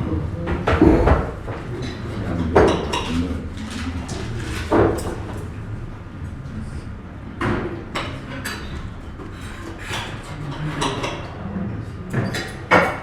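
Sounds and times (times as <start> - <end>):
dining room din: 0.0 - 13.0
plates and cutlery clinking: 0.5 - 5.7, 7.3 - 11.5.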